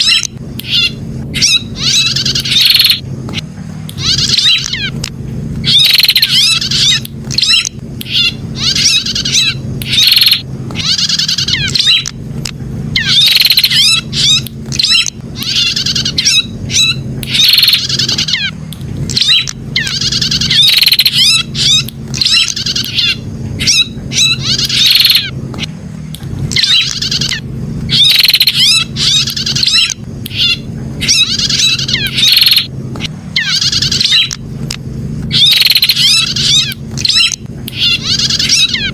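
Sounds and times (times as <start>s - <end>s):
bird trilling chirps: 0.0s - 12.2s, 12.9s - 25.7s, 26.5s - 34.4s, 35.2s - 38.9s
low hum: 0.0s - 38.9s.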